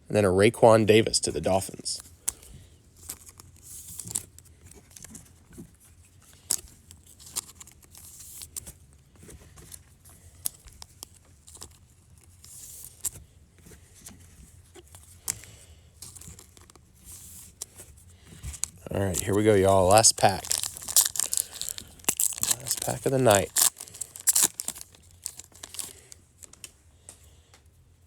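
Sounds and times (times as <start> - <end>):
plastic wrapper crinkling: 9.6 - 13.2, 14.7 - 26.8.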